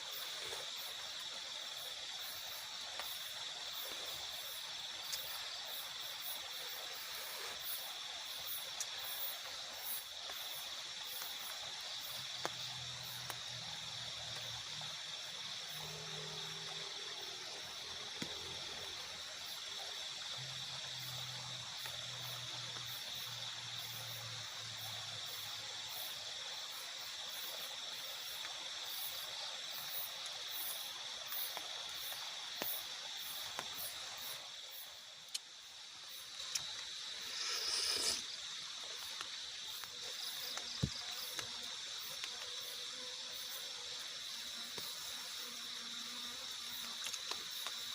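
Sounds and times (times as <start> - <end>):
insects pulsing trill: 0.0 - 47.9
rain hiss: 0.0 - 47.9
drip-like clicks: 5.0 - 5.4, 8.7 - 9.1, 35.2 - 35.6, 36.3 - 37.5, 38.1 - 42.5, 46.9 - 47.8
fast high insect chirps: 29.9 - 47.9.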